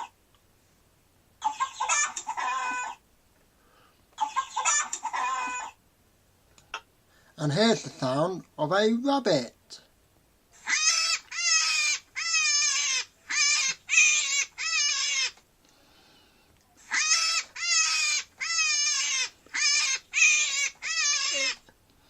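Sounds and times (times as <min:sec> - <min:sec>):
rabbit calling: 0:01.4 - 0:03.0, 0:10.5 - 0:15.4, 0:16.8 - 0:21.6.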